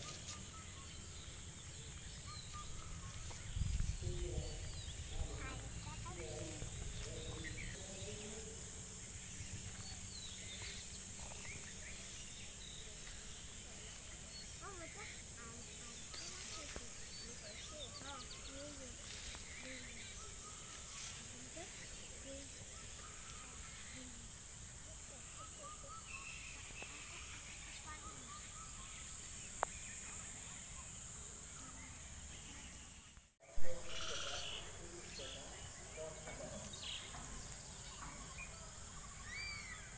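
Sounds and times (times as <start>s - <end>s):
bird chirps: 0.0s - 39.9s
high-pitched hiss: 0.0s - 39.9s
high-pitched insect drone: 33.8s - 35.3s.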